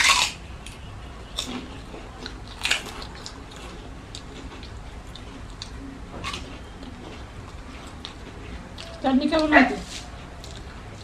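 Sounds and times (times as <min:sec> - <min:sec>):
people chewing and eating: 0:00.0 - 0:11.0.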